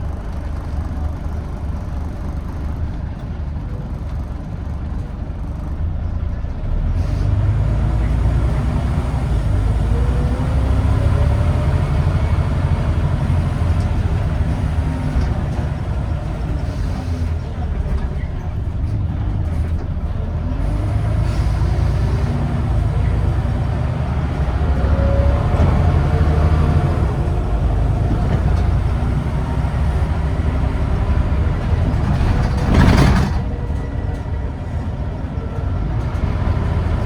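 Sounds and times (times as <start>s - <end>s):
bus diesel engine running: 0.0s - 37.0s
engine whine accelerating: 20.6s - 34.2s.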